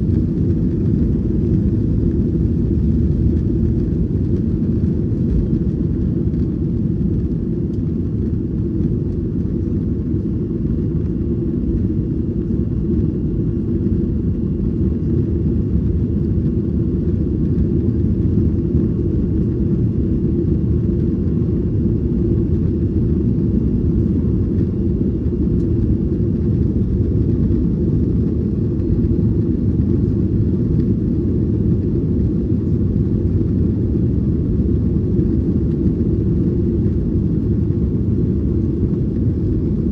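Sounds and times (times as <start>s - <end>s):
aircraft engine rumble in cabin: 0.0s - 39.9s.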